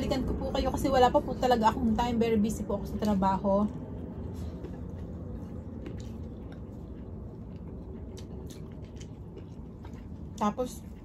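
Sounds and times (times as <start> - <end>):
low hum: 0.0 - 11.0
person chewing: 3.0 - 11.0.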